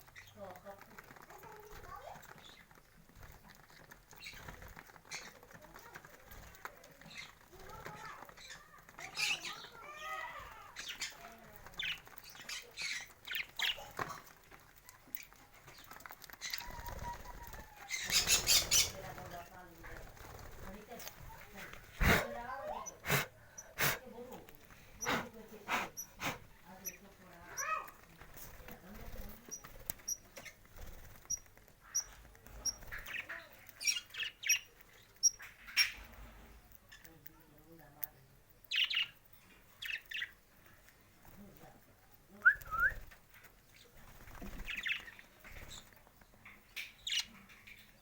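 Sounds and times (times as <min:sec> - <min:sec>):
wings flapping: 0:00.0 - 0:22.5, 0:24.7 - 0:33.7, 0:42.4 - 0:46.1
birds calling and squawking: 0:00.0 - 0:24.2, 0:24.8 - 0:37.2, 0:38.6 - 0:40.4, 0:42.6 - 0:48.0.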